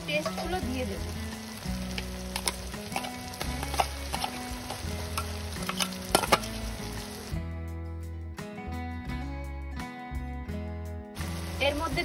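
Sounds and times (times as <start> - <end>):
paste sizzling in oil: 0.0 - 7.4, 11.2 - 12.0.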